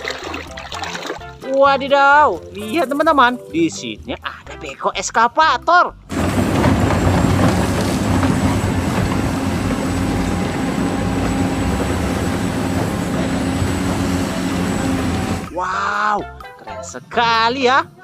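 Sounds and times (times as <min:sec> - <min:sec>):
small motor running: 0:06.1 - 0:15.5.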